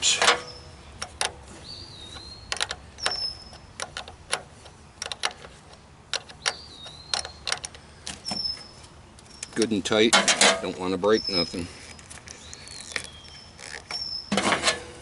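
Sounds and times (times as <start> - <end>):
bird chirping: 0.0 - 5.5, 6.1 - 14.4
metal tool clicking on bolt: 2.5 - 5.5.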